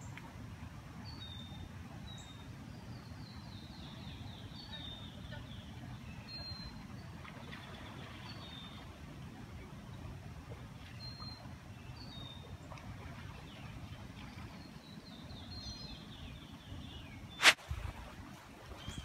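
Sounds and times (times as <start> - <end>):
songbirds whistling: 1.0 - 8.8, 14.4 - 17.6.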